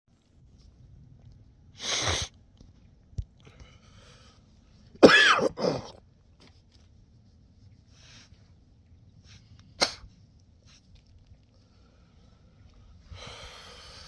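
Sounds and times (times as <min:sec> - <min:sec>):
man coughing: 0:05.0 - 0:06.0.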